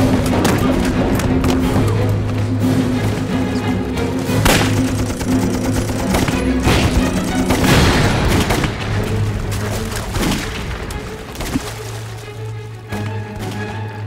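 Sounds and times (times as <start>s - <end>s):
dramatic orchestral music: 0.0s - 14.0s
gunfire: 4.4s - 9.4s, 10.0s - 10.9s
explosions: 6.4s - 9.1s.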